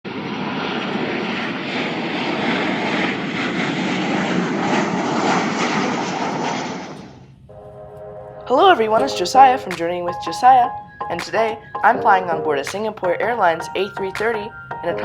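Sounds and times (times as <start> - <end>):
jet engines running: 0.1 - 11.9.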